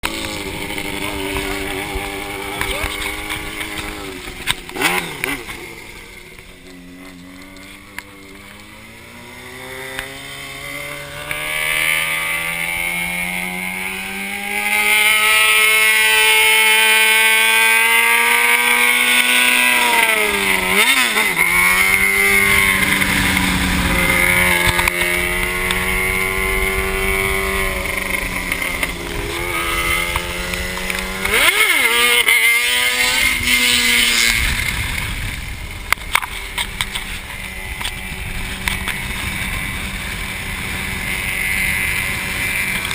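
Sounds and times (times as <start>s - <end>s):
motorcycle engine accelerating: 0.0s - 42.9s
rushing wind noise: 20.2s - 42.9s.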